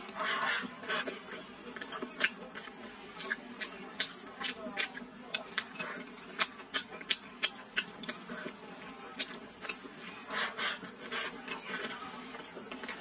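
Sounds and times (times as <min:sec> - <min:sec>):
person chewing and lip-smacking: 0:00.7 - 0:08.6, 0:09.2 - 0:10.1.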